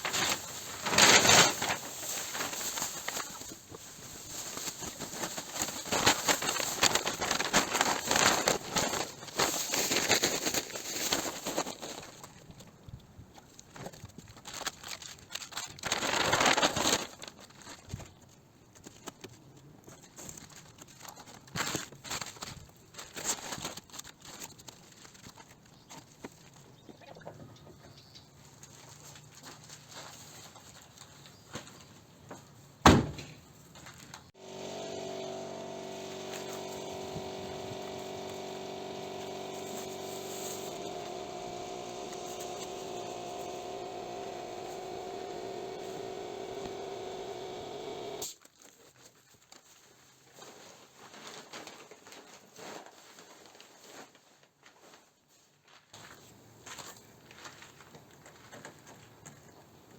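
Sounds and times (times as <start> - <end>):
motor humming: 34.4 - 48.2.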